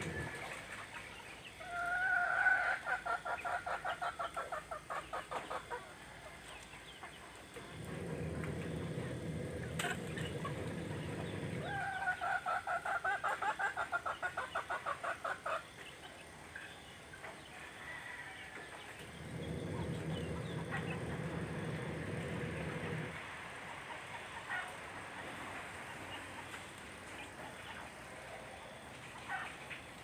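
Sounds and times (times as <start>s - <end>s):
chickens clucking: 0.0s - 30.0s
low rumble: 7.6s - 12.0s, 19.0s - 23.3s.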